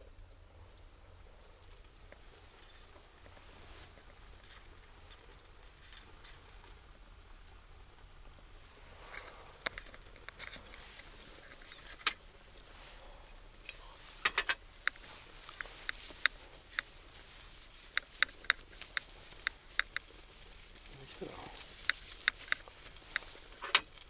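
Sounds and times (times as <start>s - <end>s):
faint hiss: 0.0s - 24.0s
food grilling with pops and crackles: 0.0s - 24.0s.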